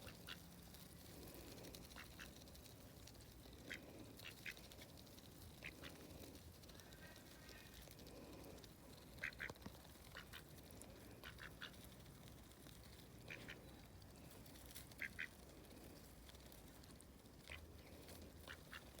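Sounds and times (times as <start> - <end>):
ducks quacking softly: 0.0 - 0.5, 1.8 - 2.6, 3.5 - 6.4, 7.0 - 12.2, 13.1 - 15.9, 17.4 - 19.0.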